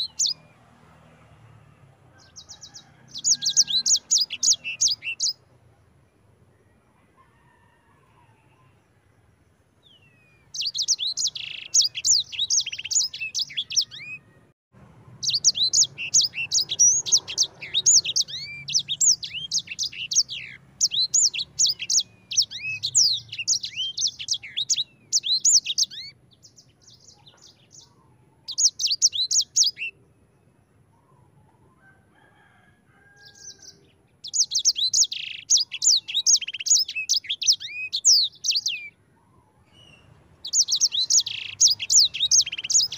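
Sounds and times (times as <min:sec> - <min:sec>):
songbird twittering trills: 0:00.0 - 0:00.5, 0:02.2 - 0:05.5, 0:09.8 - 0:14.3, 0:15.2 - 0:31.2, 0:33.1 - 0:42.9.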